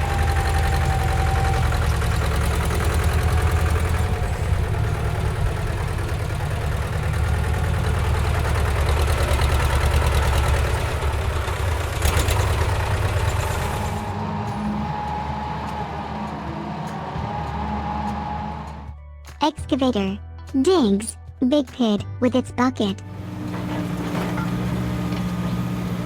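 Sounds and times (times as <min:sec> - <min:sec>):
heavy diesel engine rumbling: 0:00.0 - 0:14.0.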